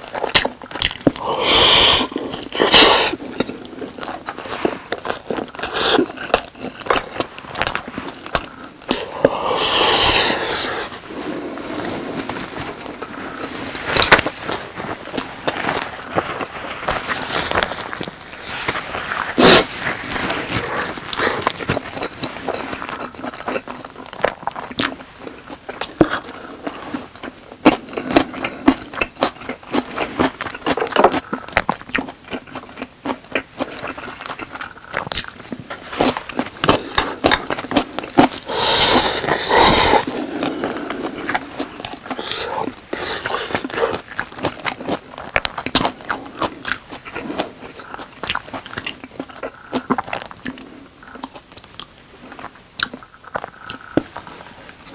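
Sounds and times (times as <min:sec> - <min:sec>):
wet chewing and biting: 0:26.9 - 0:54.2.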